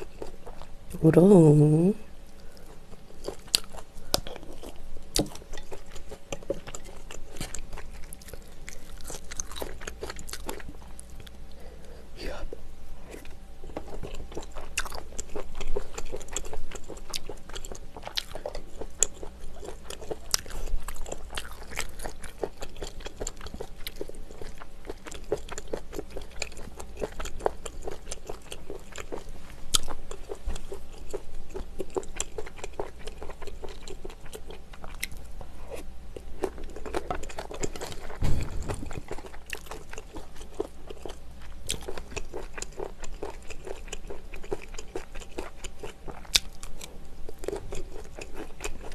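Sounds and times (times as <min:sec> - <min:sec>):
chewing and biting food: 0:02.4 - 0:11.6, 0:13.1 - 0:48.9
dull thump: 0:38.2 - 0:39.1.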